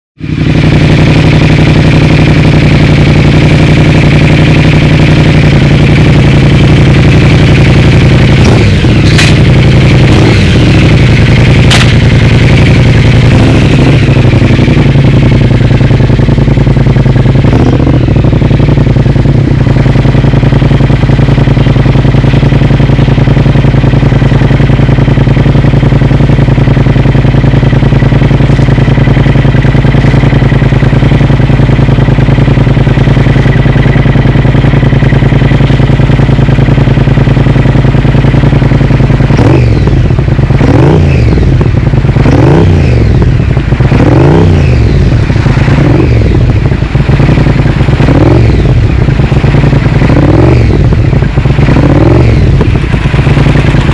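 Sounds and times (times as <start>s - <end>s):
motorcycle engine running loud: 0.2s - 53.9s
sharp exhaust crack: 2.1s - 15.6s, 42.8s - 53.9s.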